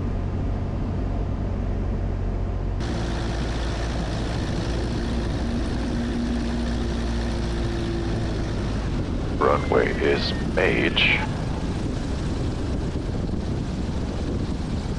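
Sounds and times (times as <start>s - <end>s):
propeller plane engine droning: 0.0s - 14.9s
faint steady tones: 2.8s - 13.4s.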